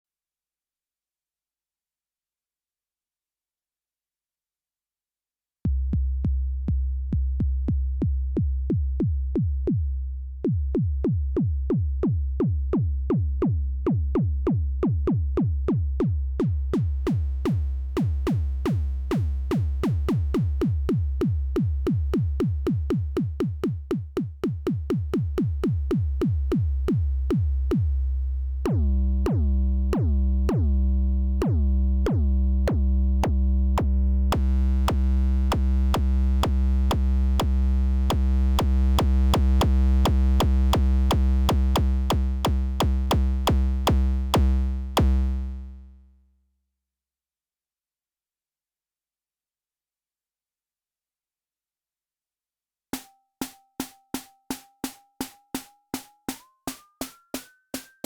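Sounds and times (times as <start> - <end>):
electronic kick drum hits: 39.0 - 45.4.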